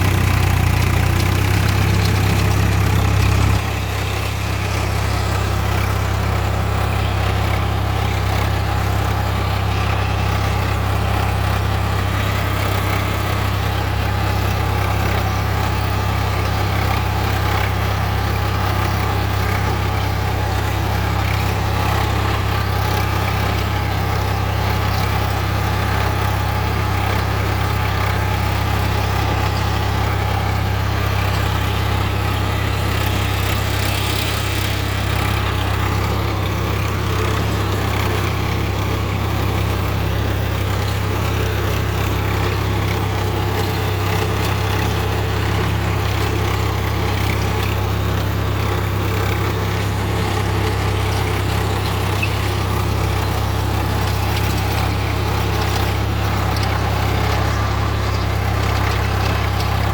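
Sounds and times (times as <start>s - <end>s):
tractor diesel engine humming: 0.0s - 59.9s.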